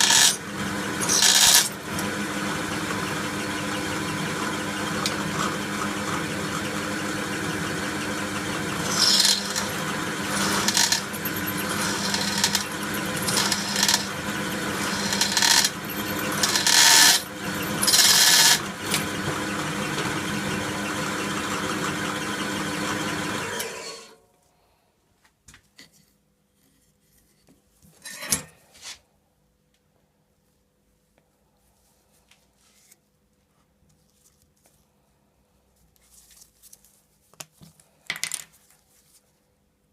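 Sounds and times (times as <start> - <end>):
power tool motor running: 0.0 - 24.2.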